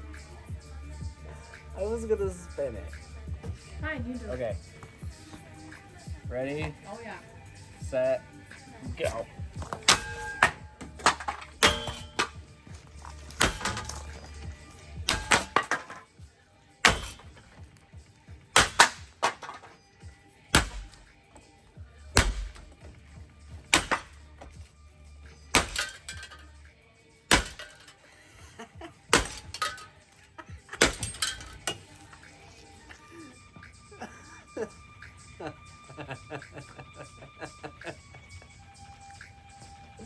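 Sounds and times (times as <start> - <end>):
metal and glass parts clattering: 9.0 - 16.2, 16.9 - 17.6, 18.6 - 19.9, 22.2 - 24.7, 25.5 - 26.5, 27.4 - 28.1, 29.1 - 32.3.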